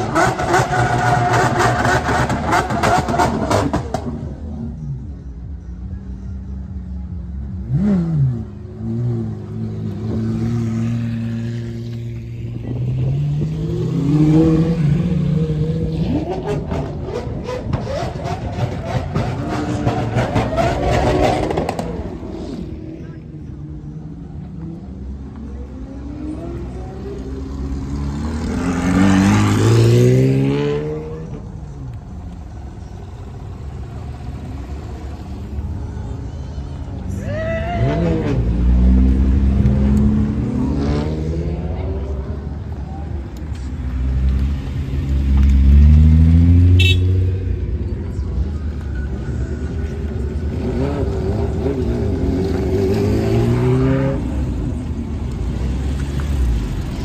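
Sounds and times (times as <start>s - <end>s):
car engines running: 0.0s - 57.0s
engine revving: 7.6s - 22.7s, 25.6s - 31.4s, 37.8s - 42.2s, 50.5s - 57.0s
idling cars rumble: 14.3s - 28.6s, 31.1s - 40.6s.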